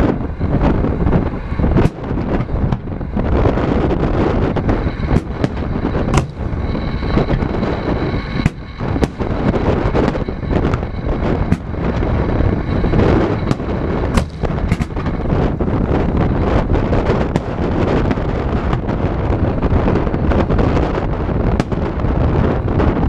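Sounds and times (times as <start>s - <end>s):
wind rushing on microphone: 0.0s - 23.0s
fireworks bursting with sharp bangs: 1.7s - 23.0s.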